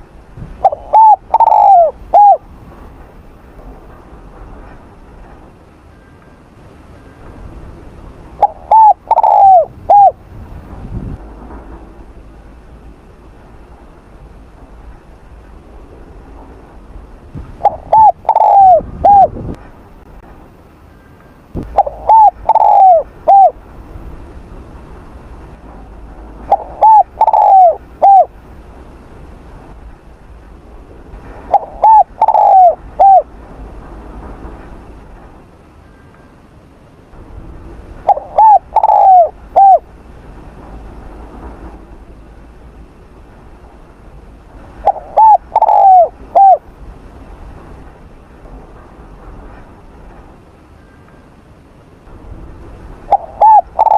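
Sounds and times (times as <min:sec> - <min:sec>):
dove cooing: 0:00.6 - 0:02.5, 0:08.4 - 0:10.2, 0:17.6 - 0:19.4, 0:21.6 - 0:23.6, 0:26.5 - 0:28.3, 0:31.5 - 0:33.3, 0:38.1 - 0:39.9, 0:44.8 - 0:46.6, 0:53.1 - 0:53.9.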